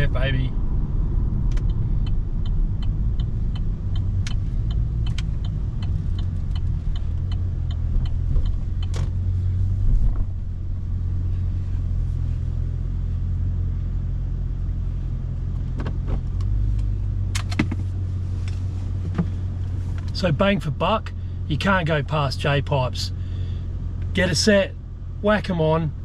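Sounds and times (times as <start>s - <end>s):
car engine low rumble: 0.0s - 26.0s.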